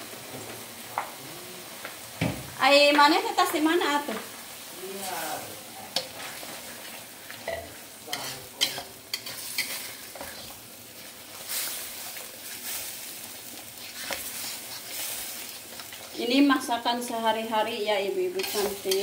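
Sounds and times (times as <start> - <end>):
spice paste sizzling in oil: 0.0 - 19.0
wooden spatula scraping a pan: 6.0 - 17.3.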